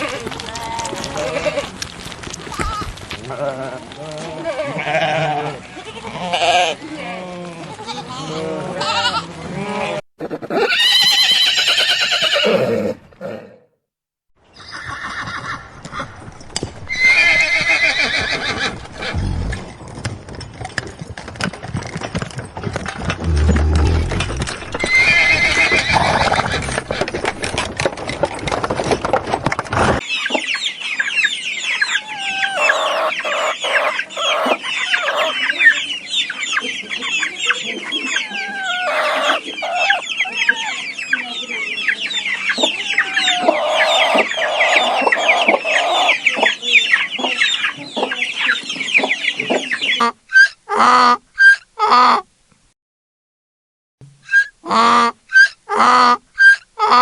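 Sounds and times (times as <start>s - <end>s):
horse neighing: 9.7s - 13.6s, 23.2s - 26.8s, 32.0s - 35.4s, 38.3s - 40.6s, 43.2s - 46.3s
chickens clucking: 10.2s - 10.8s, 23.3s - 27.7s, 31.7s - 50.1s.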